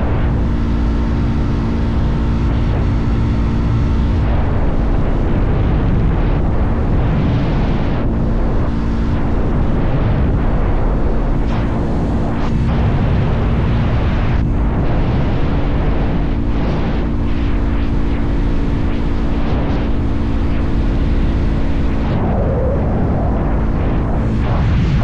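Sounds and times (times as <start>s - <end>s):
wind rumble on microphone: 0.0s - 25.0s
motorcycle engine cruising: 0.4s - 6.8s.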